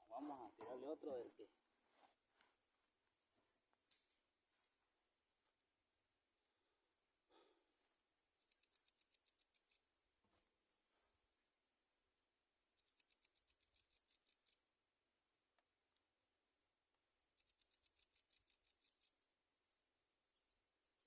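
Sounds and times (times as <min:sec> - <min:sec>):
rapid high-pitched ticking: 0:08.4 - 0:09.8, 0:12.8 - 0:14.6, 0:17.4 - 0:19.2.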